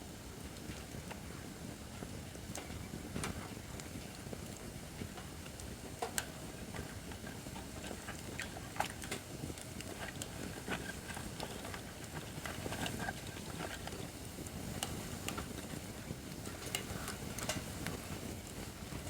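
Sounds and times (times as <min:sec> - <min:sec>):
low rumble of flames: 0:00.0 - 0:19.0
firewood crackling and popping: 0:00.1 - 0:19.0.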